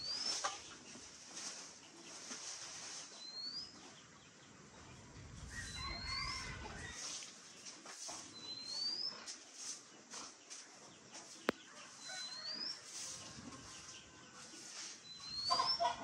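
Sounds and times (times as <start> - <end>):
broom brushing concrete floor: 0.0 - 3.5, 6.8 - 15.8.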